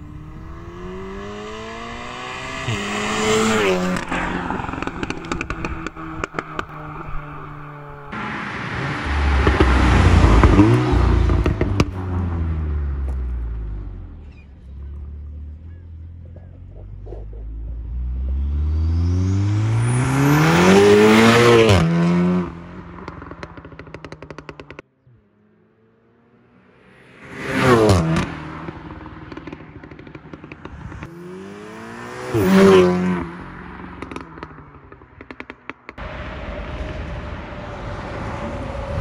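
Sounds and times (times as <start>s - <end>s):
car engine revving: 0.0s - 24.8s, 25.7s - 39.0s
exhaust pops and crackles: 3.9s - 7.4s, 9.4s - 12.0s, 22.9s - 24.8s, 28.6s - 31.2s, 33.8s - 36.0s.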